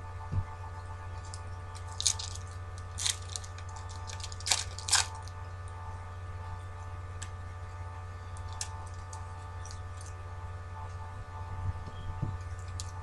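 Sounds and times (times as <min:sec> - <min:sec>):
electrical hum: 0:00.0 - 0:13.0
cards rustling: 0:01.2 - 0:05.3
foil card packs crinkling: 0:01.2 - 0:05.4, 0:08.4 - 0:10.2, 0:12.4 - 0:13.0.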